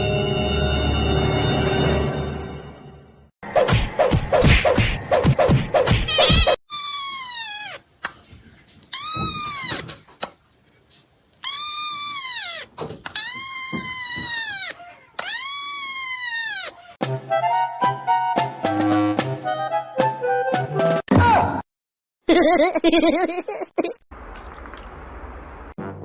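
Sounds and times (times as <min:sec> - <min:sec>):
music: 0:00.0 - 0:03.3, 0:17.0 - 0:21.1, 0:25.8 - 0:26.0
cat meowing: 0:06.1 - 0:07.8, 0:08.9 - 0:09.9, 0:11.4 - 0:17.0.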